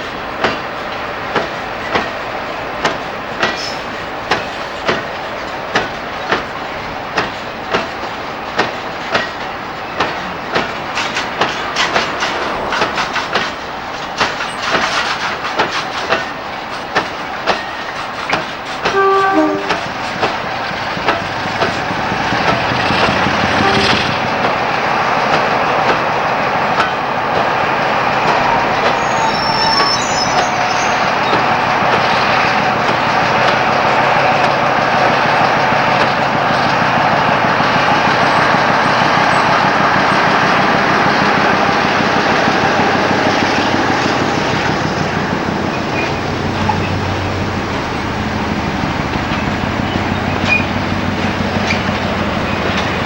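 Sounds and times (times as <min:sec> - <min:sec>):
train rumbling: 0:00.0 - 0:53.0
train wheels clicking over rail joints: 0:00.0 - 0:53.0
train horn note: 0:18.8 - 0:19.9, 0:23.4 - 0:24.2.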